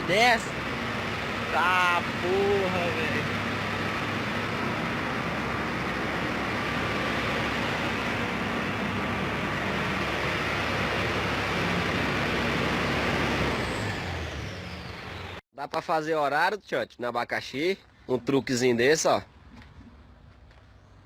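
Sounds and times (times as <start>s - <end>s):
low engine hum: 0.0s - 15.4s
truck traffic rushing: 0.0s - 15.4s.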